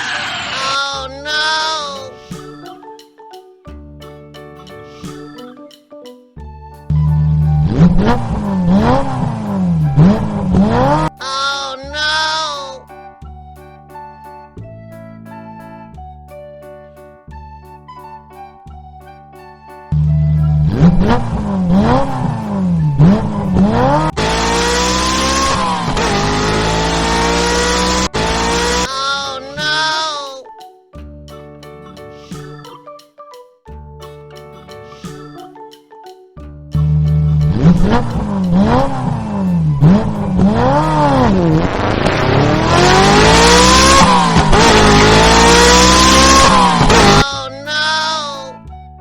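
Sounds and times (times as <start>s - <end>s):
car engine revving: 0.0s - 0.9s, 7.1s - 11.2s, 20.0s - 28.9s, 36.8s - 47.3s.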